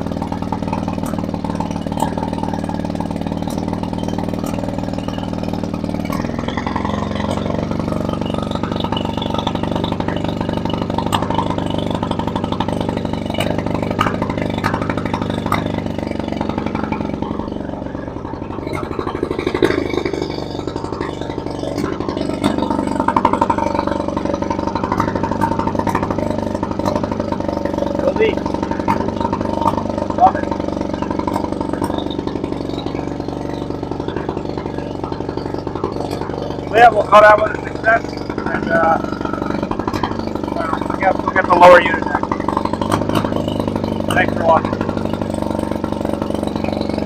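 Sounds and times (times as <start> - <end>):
outboard motor running: 0.0 - 47.0.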